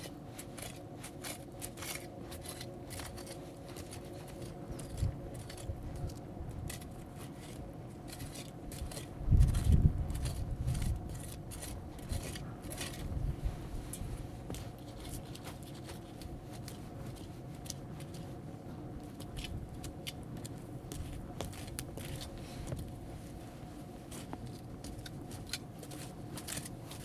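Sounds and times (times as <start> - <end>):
wood crackling and popping: 0.0 - 27.0
fire low rumble: 4.1 - 15.3, 16.2 - 26.9.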